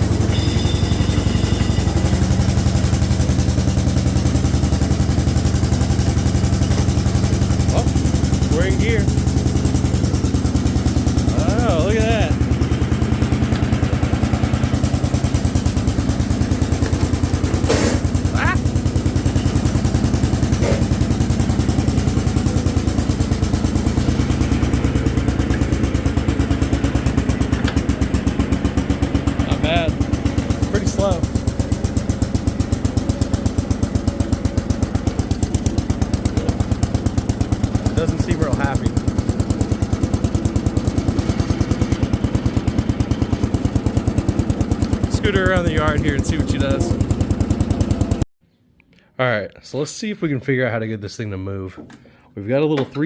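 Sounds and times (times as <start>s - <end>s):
garden tractor engine running: 0.0s - 48.2s.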